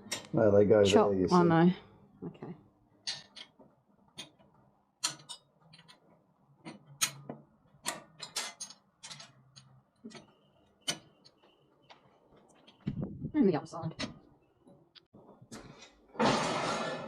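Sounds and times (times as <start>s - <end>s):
washers and bolts clinking: 5.0s - 11.4s.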